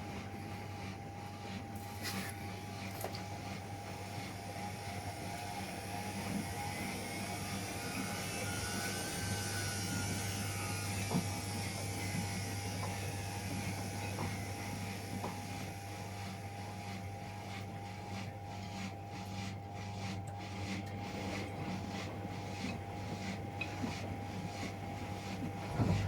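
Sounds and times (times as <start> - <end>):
washing machine motor hum: 0.0 - 26.0.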